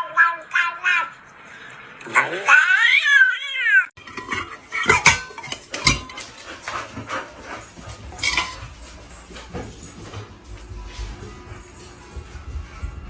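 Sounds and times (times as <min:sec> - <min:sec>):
cat meowing: 0:02.3 - 0:04.0.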